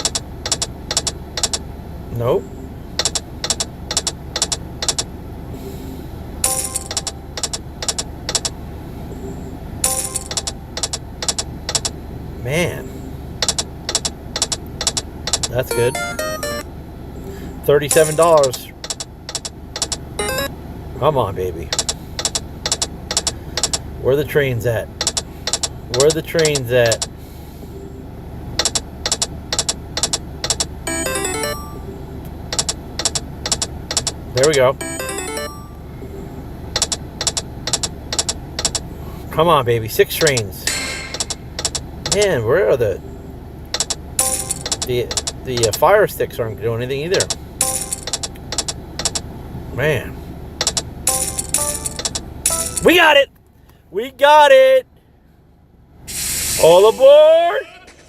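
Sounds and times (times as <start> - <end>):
electronic ticks: 0.0 - 1.6, 3.0 - 5.1, 6.4 - 8.6, 9.8 - 12.0, 13.4 - 16.6, 25.0 - 27.1, 28.6 - 35.6, 36.8 - 38.8, 41.2 - 42.2, 43.7 - 45.8, 47.1 - 49.2, 50.6 - 52.9
slot reels stopping with clicks: 0.0 - 1.6, 6.4 - 8.6, 9.8 - 12.0, 13.4 - 16.6, 17.9 - 20.5, 28.6 - 35.8, 40.2 - 42.2, 43.7 - 45.8, 47.1 - 49.2, 50.6 - 53.0
bright chiming sound: 5.6 - 7.3, 9.2 - 10.7, 15.7 - 16.7, 30.9 - 32.2, 34.8 - 36.3, 44.2 - 44.7.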